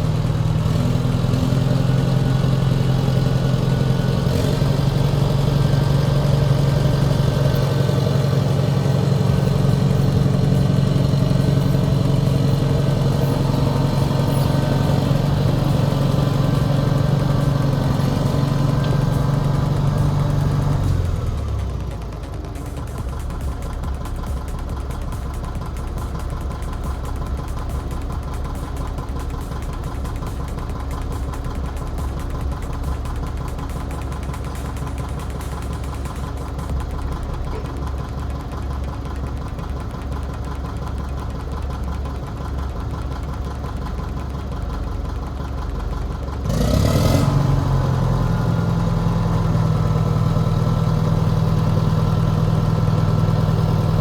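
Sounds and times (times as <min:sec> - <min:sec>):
loader engine running: 0:00.0 - 0:54.0.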